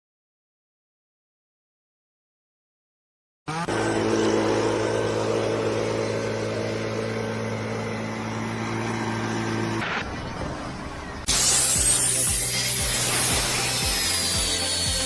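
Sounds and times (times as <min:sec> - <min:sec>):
engine running steadily: 0:03.5 - 0:15.0.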